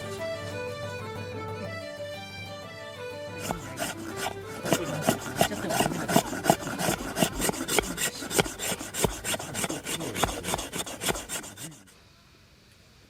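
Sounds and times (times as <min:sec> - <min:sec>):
rasping strokes on wood: 0:03.3 - 0:11.9.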